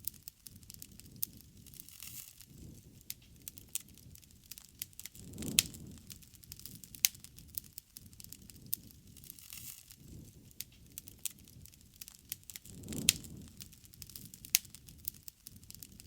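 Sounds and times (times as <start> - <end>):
low rush of flame: 0.0 - 16.0
wood fire crackling and popping: 0.0 - 16.0.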